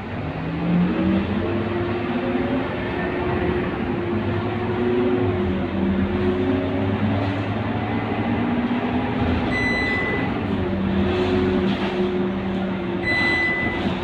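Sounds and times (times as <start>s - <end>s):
bus engine running: 0.0s - 14.0s
road noise: 0.0s - 14.0s
high electronic beeps: 9.6s - 10.3s, 13.0s - 13.8s.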